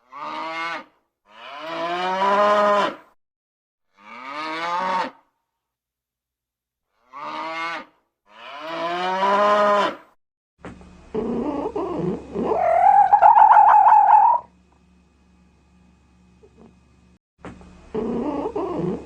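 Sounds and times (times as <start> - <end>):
cow mooing: 0.1 - 3.0, 4.0 - 5.2, 7.1 - 10.0
high-pitched animal cry: 11.2 - 14.5.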